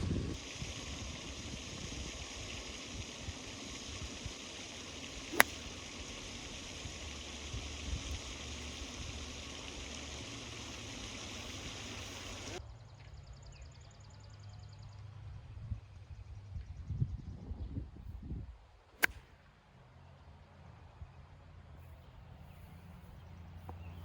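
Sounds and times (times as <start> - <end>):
steady outdoor hiss: 0.0 - 15.2, 18.6 - 24.0
golf club striking ball: 4.4 - 6.6, 19.0 - 19.3.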